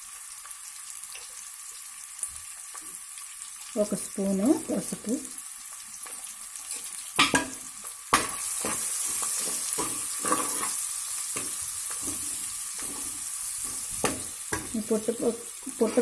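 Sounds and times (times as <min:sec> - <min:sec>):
onions sizzling in oil: 0:00.0 - 0:16.0
spatula scraping and stirring: 0:08.2 - 0:16.0.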